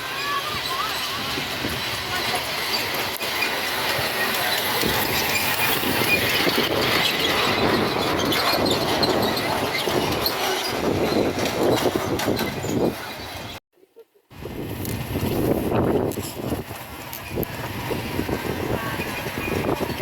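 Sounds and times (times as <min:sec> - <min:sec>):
miniature train wheels clattering: 0:00.0 - 0:13.6.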